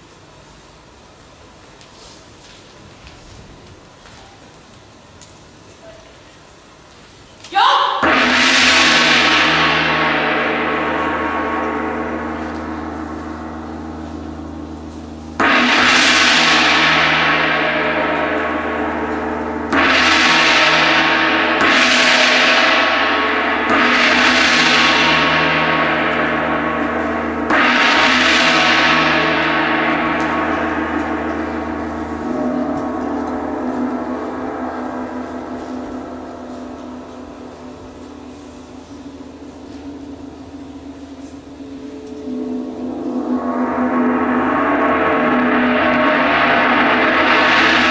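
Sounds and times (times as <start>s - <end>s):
large gong ringing: 7.9s - 47.9s.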